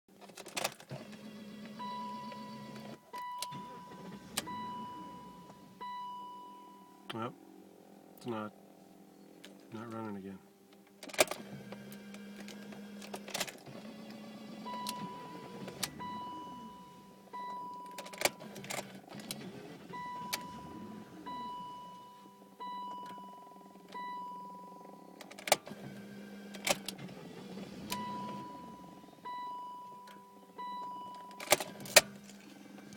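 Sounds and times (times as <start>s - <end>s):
electronic warning beep: 1.8s - 7.1s, 14.6s - 18.6s, 19.9s - 25.2s, 27.9s - 31.4s
low hum: 1.8s - 9.7s, 14.2s - 25.4s.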